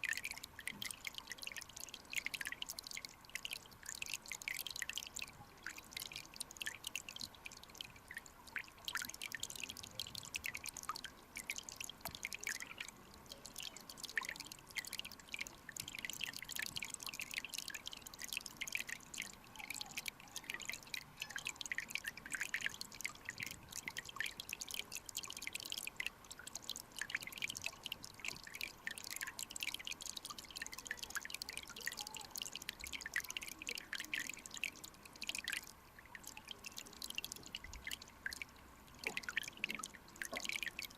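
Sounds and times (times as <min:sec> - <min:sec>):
stream water dripping and bubbling: 0:00.0 - 0:40.9.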